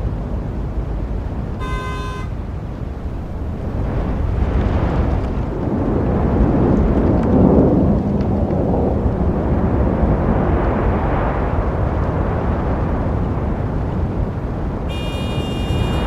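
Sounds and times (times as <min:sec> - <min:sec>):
vehicle passing close: 0:02.7 - 0:11.5.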